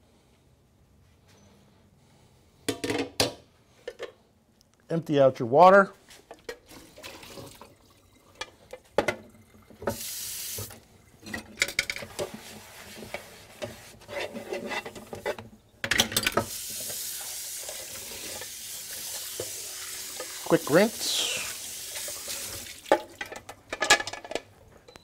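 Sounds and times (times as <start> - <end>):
water pouring: 6.7 - 11.2, 16.5 - 23.4
tap running: 16.4 - 20.8.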